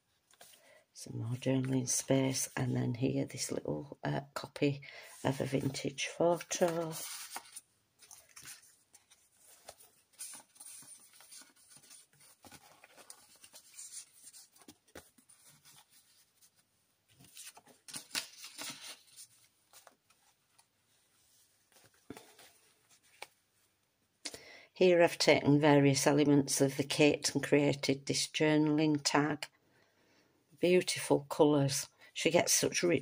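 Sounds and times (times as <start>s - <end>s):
page turning swishes: 6.4s - 20.4s.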